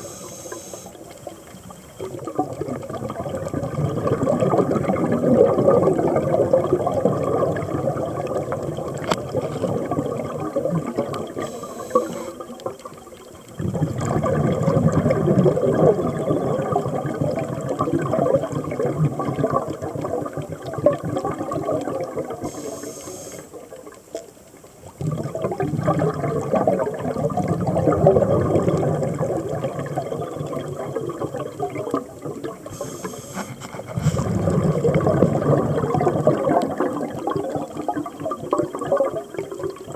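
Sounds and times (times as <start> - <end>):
regulator inhale hiss: 0.0 - 1.3, 11.4 - 12.5, 22.4 - 23.7, 32.7 - 34.3
exhaled bubbles burbling: 0.0 - 39.9.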